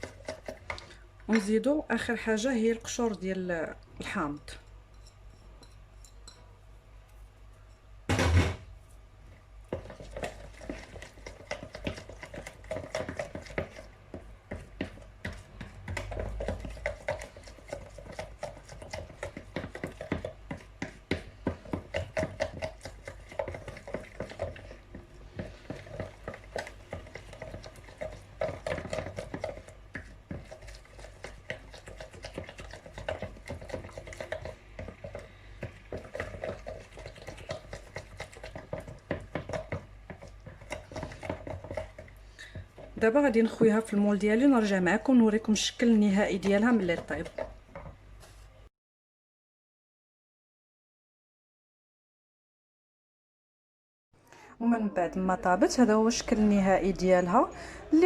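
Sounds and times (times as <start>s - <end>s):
loud knock: 8.1s - 8.7s.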